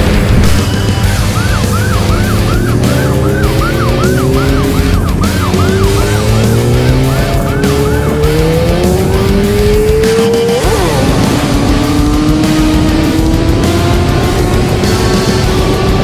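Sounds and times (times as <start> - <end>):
motorcycle engine accelerating: 0.0 - 16.0
police siren yelping: 0.5 - 11.7.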